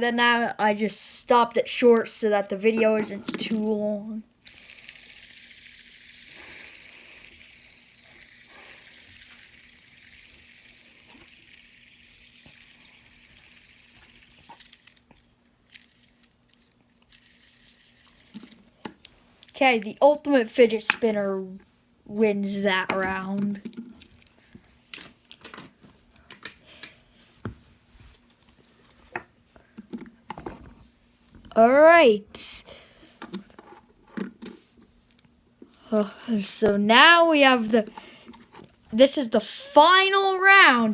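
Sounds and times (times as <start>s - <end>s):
fidget spinner bearing whirring: 1.7s - 21.2s.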